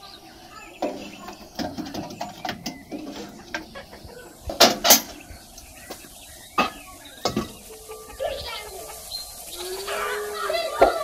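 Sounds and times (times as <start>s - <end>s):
metal door clanking shut: 4.5s - 5.2s
firewood knocking: 4.5s - 5.3s, 5.9s - 7.6s.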